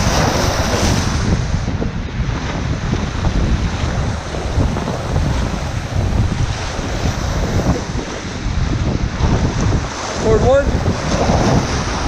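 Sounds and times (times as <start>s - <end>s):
rushing whitewater: 0.0s - 1.5s, 2.7s - 12.0s
wind buffeting microphone: 0.0s - 12.0s.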